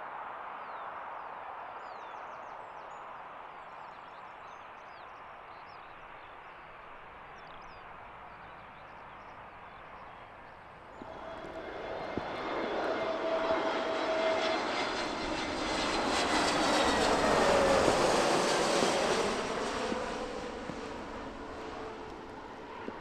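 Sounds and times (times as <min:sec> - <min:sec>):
airliner engine passing by: 0:05.8 - 0:23.0.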